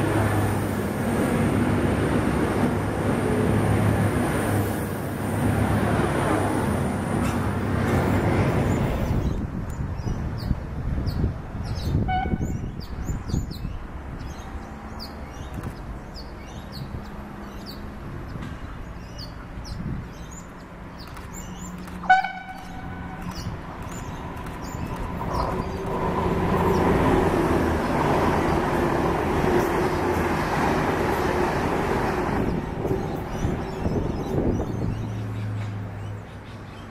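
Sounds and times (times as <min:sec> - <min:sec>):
train passing at speed: 0:00.0 - 0:15.2, 0:21.8 - 0:36.1
small birds chirping: 0:08.3 - 0:27.0, 0:32.4 - 0:36.9
train horn toot: 0:12.0 - 0:12.6, 0:22.0 - 0:23.4.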